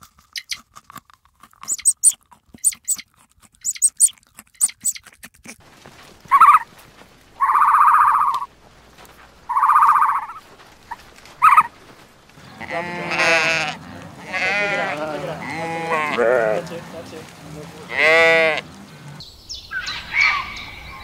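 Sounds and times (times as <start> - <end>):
buzzing calls: 6.3 - 6.7, 7.4 - 8.5, 9.5 - 11.8
short sharp calls: 7.4 - 8.5, 9.5 - 11.7
sheep bleating: 12.4 - 17.1, 17.7 - 19.2.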